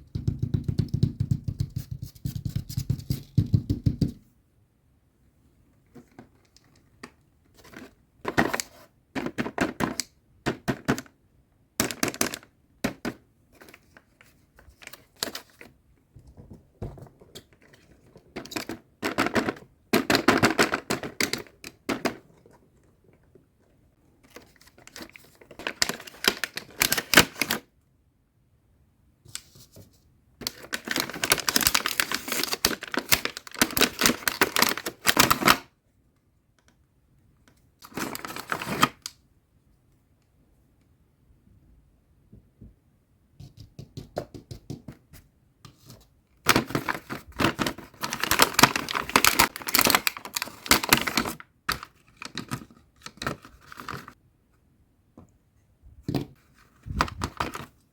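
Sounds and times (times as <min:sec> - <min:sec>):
toy packaging clicking and tapping: 0:09.2 - 0:11.2, 0:11.8 - 0:13.8, 0:17.1 - 0:22.4, 0:30.4 - 0:35.6, 0:46.5 - 0:54.1.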